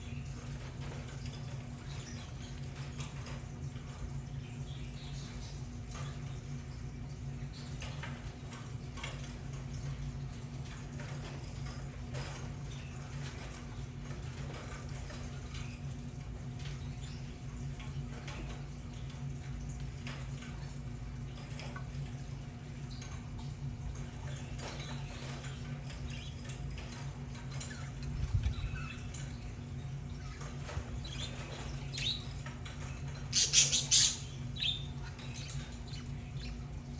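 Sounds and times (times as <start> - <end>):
steady low hum: 0.0 - 36.9
budgerigars chattering: 33.3 - 35.0.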